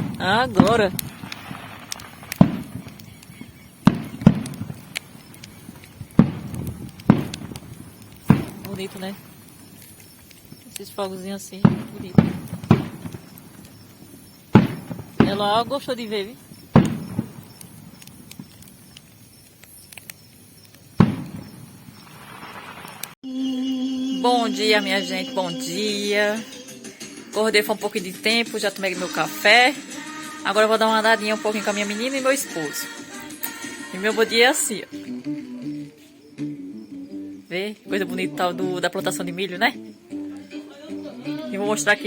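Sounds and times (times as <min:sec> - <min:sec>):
fireworks bangs: 0:00.0 - 0:23.2
bonfire crackling: 0:00.0 - 0:42.0.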